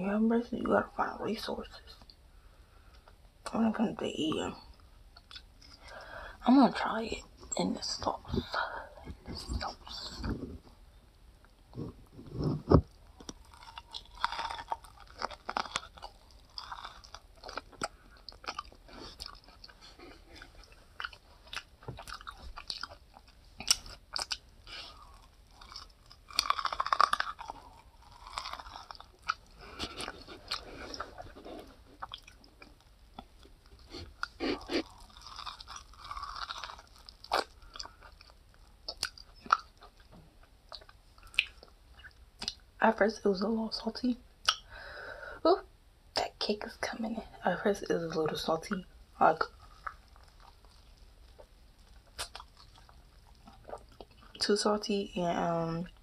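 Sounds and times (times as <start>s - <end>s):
person chewing corn: 4.7s - 6.1s, 11.5s - 42.7s, 49.4s - 54.4s.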